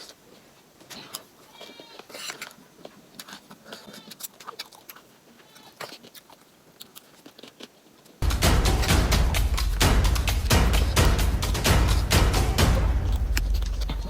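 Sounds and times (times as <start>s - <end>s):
small food crackles: 0.0s - 8.2s
wet chewing: 0.0s - 14.0s
mouth clicks: 5.7s - 14.0s.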